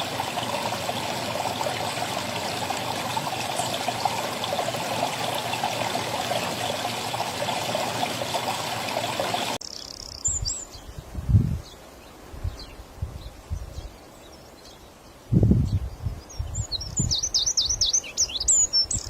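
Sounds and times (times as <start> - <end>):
running water: 0.0 - 9.6
bird chirp: 9.3 - 11.0, 11.6 - 19.0.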